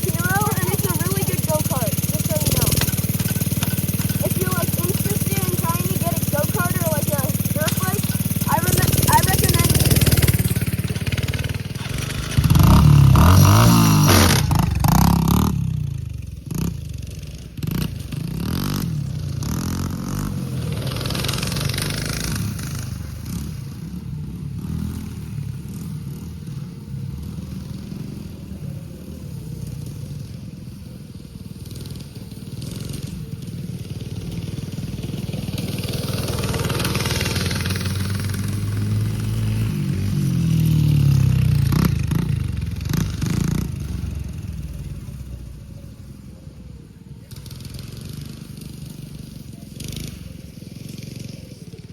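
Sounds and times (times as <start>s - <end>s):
dirt bike engine revving: 0.0s - 30.8s, 31.4s - 45.7s, 47.3s - 51.7s.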